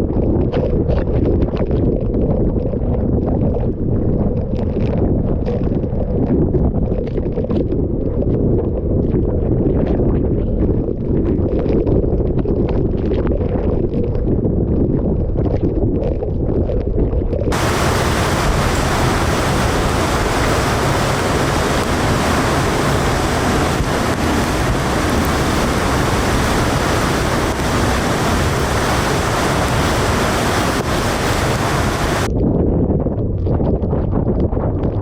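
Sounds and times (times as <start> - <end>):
wind buffeting microphone: 0.0 - 35.0
torrential rain hissing: 17.5 - 32.3.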